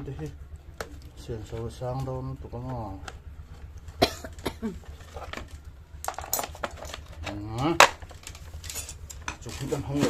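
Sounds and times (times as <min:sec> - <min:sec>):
metal tools clinking: 0:04.9 - 0:10.0.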